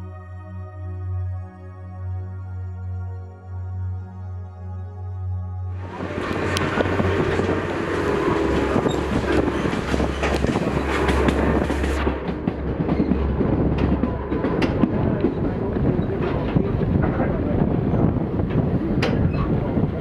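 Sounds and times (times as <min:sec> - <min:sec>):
train rumbling on track: 0:05.7 - 0:20.0.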